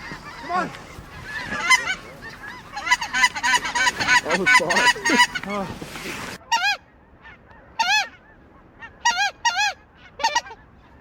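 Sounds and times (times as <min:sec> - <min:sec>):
goose honking: 0:00.0 - 0:10.7.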